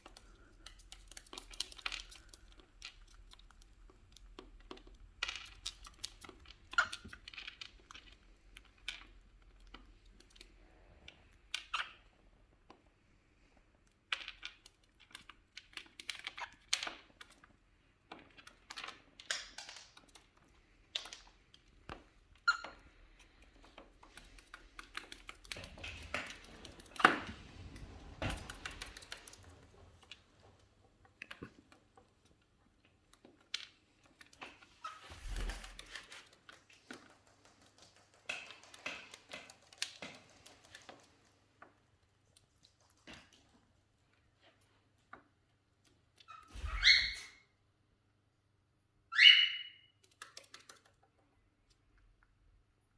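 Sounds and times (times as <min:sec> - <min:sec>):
bird chirp: 0:46.6 - 0:47.4, 0:49.1 - 0:49.9
beaks clicking and tapping on nut: 0:50.0 - 0:51.1.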